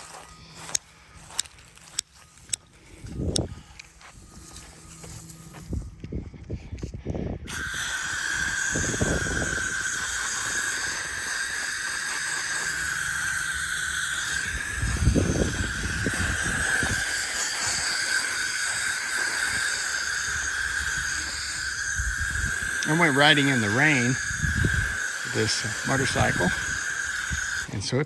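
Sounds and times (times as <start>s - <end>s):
hose spraying water: 7.5s - 28.0s.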